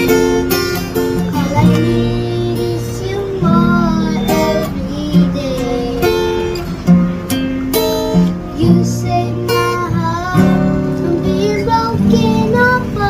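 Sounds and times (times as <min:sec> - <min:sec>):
acoustic guitar strumming: 0:00.0 - 0:13.0
person singing: 0:01.1 - 0:06.7, 0:08.5 - 0:13.0.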